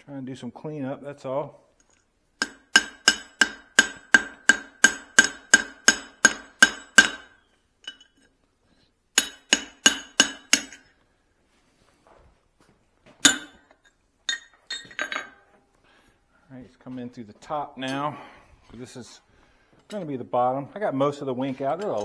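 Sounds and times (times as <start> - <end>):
hammer striking steel on anvil: 2.4 - 8.2, 9.2 - 10.9, 13.2 - 13.7.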